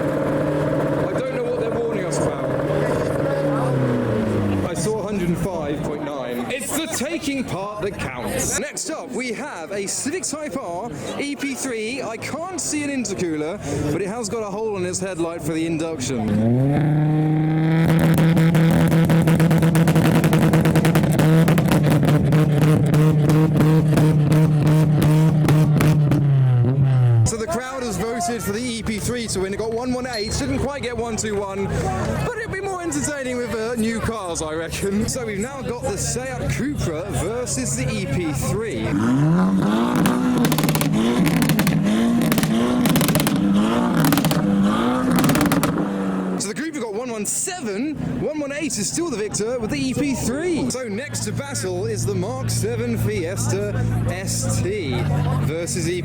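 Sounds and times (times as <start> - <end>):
car engine revving: 0.0 - 6.0, 16.0 - 46.5, 50.2 - 56.0
rapid exhaust crackling: 0.0 - 8.6, 15.5 - 46.6, 49.0 - 56.0.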